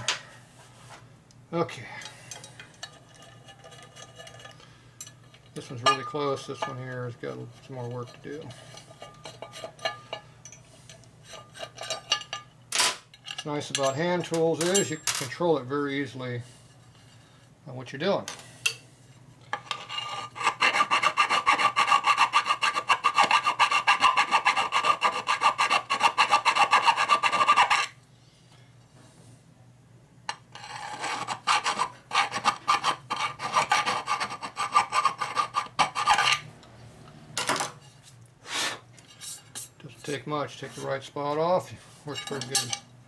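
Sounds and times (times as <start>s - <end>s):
hand file rasping on metal: 19.8s - 28.0s, 30.5s - 36.5s.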